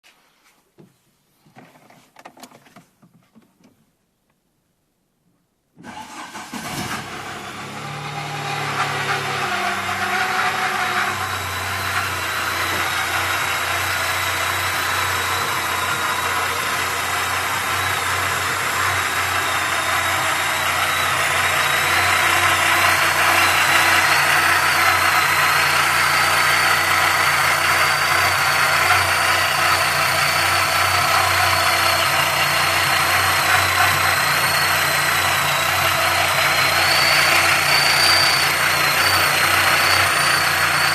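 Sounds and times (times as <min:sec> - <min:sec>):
car engine idling: 0:05.9 - 0:40.9
thin high whistle: 0:33.6 - 0:40.9.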